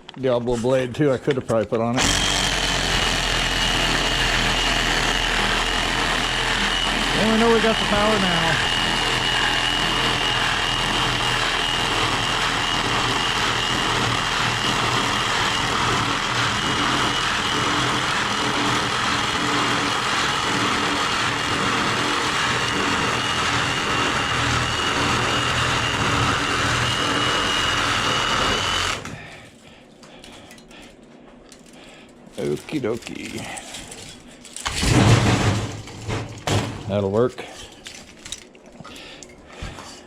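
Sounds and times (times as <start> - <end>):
reciprocating saw cutting metal: 2.0 - 29.0.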